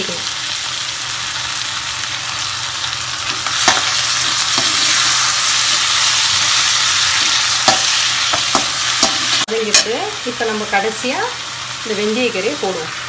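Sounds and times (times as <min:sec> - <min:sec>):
shrimp sizzling in a pan: 0:00.0 - 0:13.0
spoon knocking on pan: 0:07.6 - 0:10.0.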